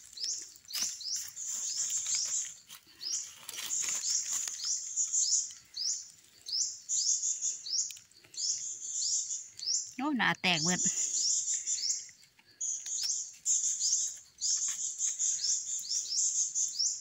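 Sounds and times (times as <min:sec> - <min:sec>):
dry leaves rustling: 0:00.0 - 0:08.5
bird chirping: 0:00.0 - 0:17.0.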